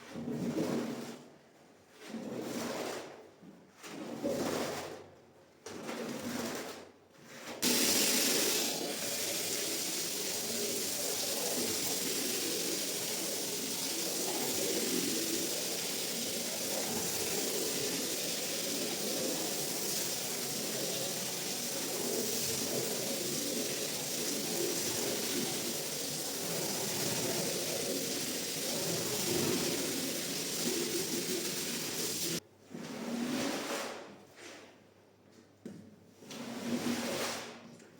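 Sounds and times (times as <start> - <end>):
water spraying hiss: 7.6 - 32.4.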